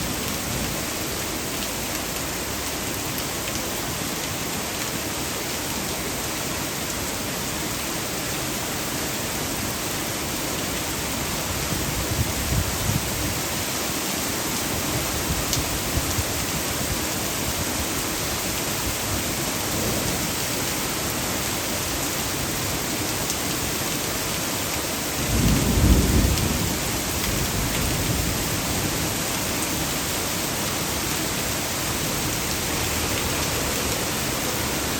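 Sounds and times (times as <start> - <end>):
torrential rain: 0.0 - 34.9
water overflowing from storm drain: 0.0 - 34.9
thunder rumbling: 25.3 - 28.9.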